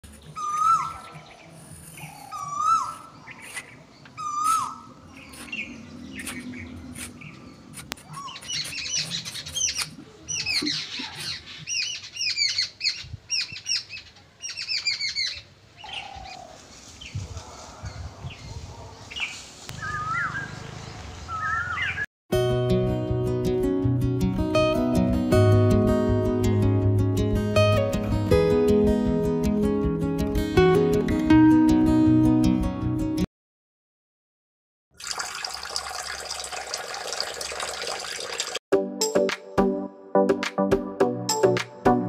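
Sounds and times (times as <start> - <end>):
birds chirping rapidly: 0.1 - 17.2, 17.8 - 22.1
bird whistled call: 0.4 - 1.2, 2.2 - 3.1, 4.2 - 4.9, 19.7 - 20.6, 21.3 - 22.0.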